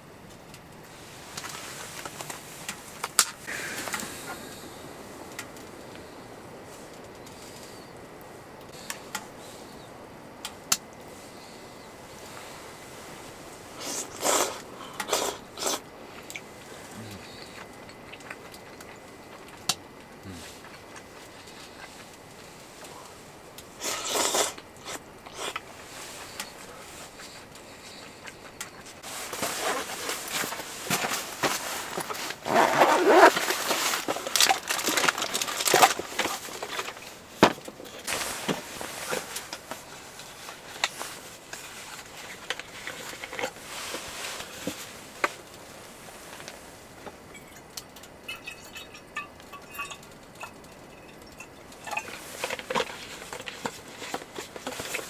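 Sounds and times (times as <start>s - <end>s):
snack bag crinkling: 23.8s - 44.1s.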